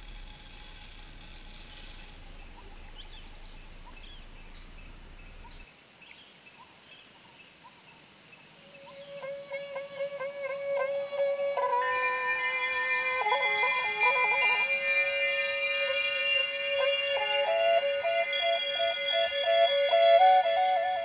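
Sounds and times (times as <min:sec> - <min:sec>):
low rumble: 0:00.0 - 0:05.6
birds chirping faintly: 0:00.0 - 0:09.2
music with long held note: 0:08.8 - 0:21.0.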